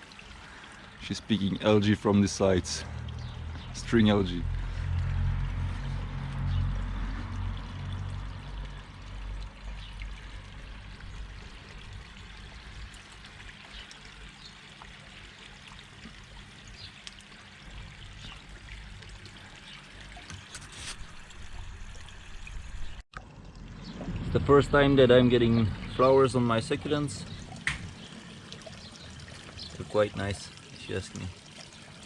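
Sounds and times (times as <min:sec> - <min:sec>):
small ticks and splashes: 0:00.0 - 0:24.4, 0:25.2 - 0:32.0
water trickling and pouring: 0:00.0 - 0:32.0
low rumble: 0:02.8 - 0:09.7, 0:21.4 - 0:28.0.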